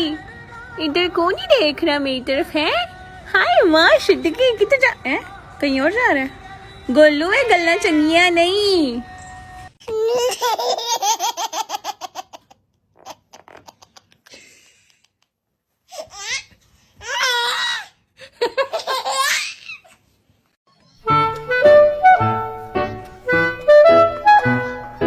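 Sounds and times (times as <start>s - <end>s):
baby laughing: 9.9s - 14.3s, 18.5s - 20.0s.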